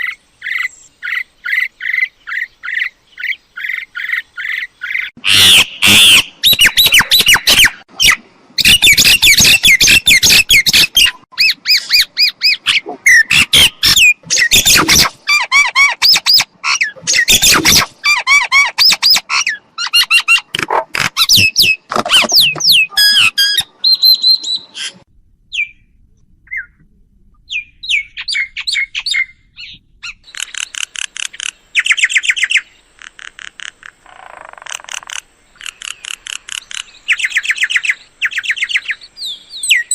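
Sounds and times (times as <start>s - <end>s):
myna squawking and whistling: 5.3s - 20.5s.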